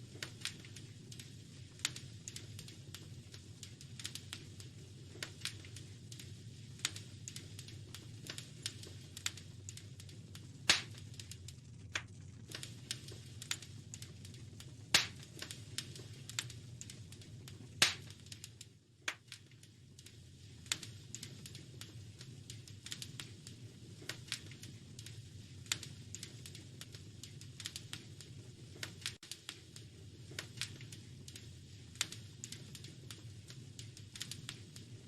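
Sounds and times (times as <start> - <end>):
low steady rumble: 0.0 - 19.1
wood fire crackling: 0.0 - 35.0.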